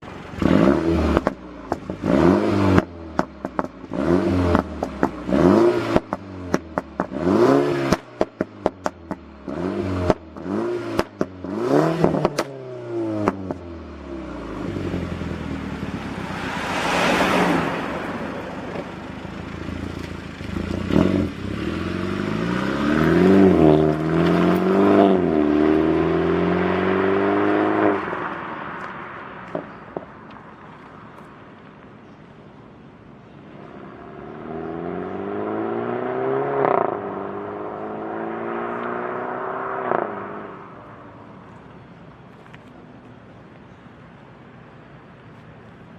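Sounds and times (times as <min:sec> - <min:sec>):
car engine revving: 0:00.2 - 0:30.1, 0:33.6 - 0:41.0
exhaust crackles and pops: 0:00.4 - 0:02.1, 0:02.7 - 0:12.6, 0:18.4 - 0:24.8, 0:27.8 - 0:32.0.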